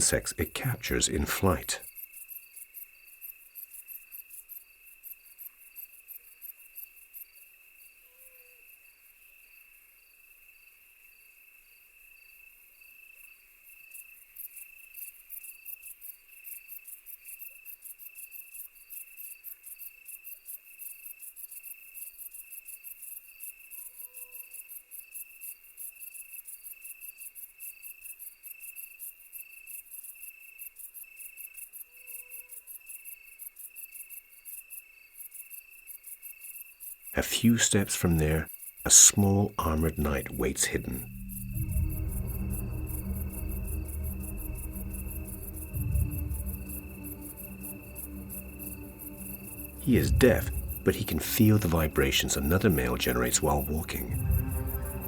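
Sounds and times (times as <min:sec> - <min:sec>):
faint low calls: 0:00.0 - 0:01.8, 0:37.2 - 0:55.0
crickets chirping: 0:39.8 - 0:55.0
pulsing insect trill: 0:41.0 - 0:55.0.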